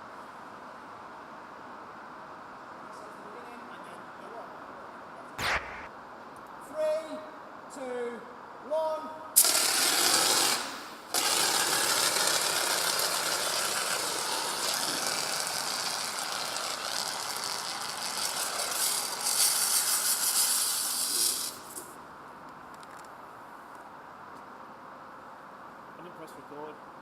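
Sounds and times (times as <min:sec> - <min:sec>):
spray paint hissing: 0:18.4 - 0:21.9.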